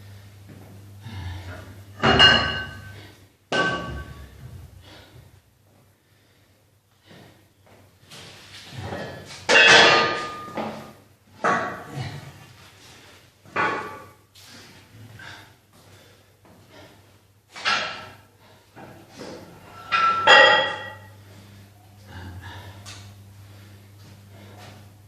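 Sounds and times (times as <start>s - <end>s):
metal gym weights clanking: 2.0s - 4.3s, 19.6s - 21.1s.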